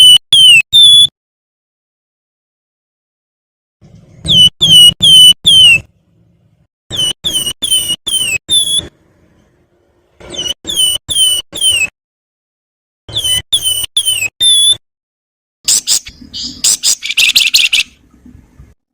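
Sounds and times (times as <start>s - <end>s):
bird singing whistled notes: 4.3s - 5.8s.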